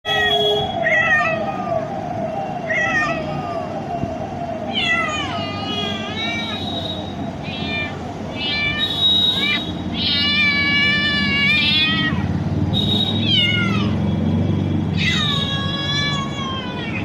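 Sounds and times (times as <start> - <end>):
cat meowing: 0.8 - 1.8, 2.7 - 3.6, 4.7 - 6.7, 7.4 - 12.3, 13.2 - 14.0, 15.0 - 17.0.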